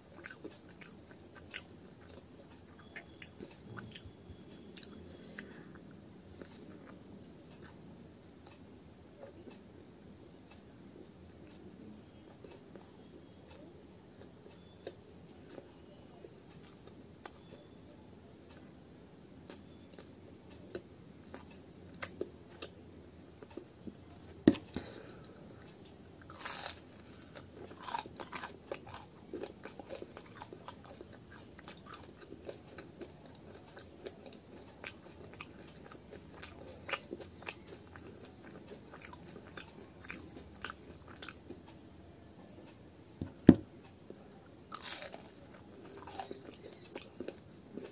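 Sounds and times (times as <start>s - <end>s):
person chewing fried snacks: 0.0s - 9.4s, 12.3s - 17.7s, 19.5s - 22.8s, 23.4s - 41.8s, 43.3s - 47.9s
crisp crunches and clicks: 26.3s - 29.1s, 44.7s - 47.2s.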